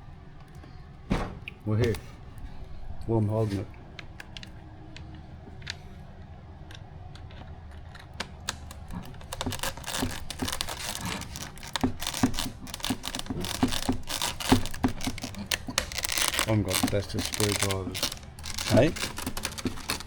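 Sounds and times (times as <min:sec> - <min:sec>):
plastic parts and screws clattering: 0:07.2 - 0:20.0.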